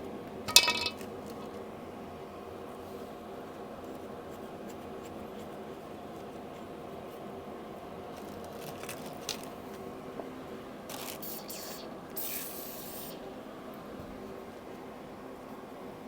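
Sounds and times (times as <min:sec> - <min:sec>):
low mechanical hum: 0:00.0 - 0:16.0
short hisses: 0:11.2 - 0:13.2.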